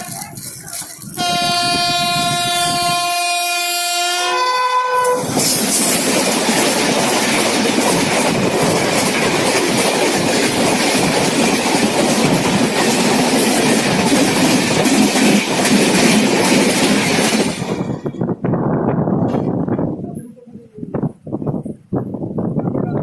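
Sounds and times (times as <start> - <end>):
train rushing past: 0.0 - 19.9
locomotive horn: 1.1 - 5.3
wheels clattering over rail joints: 5.2 - 18.2.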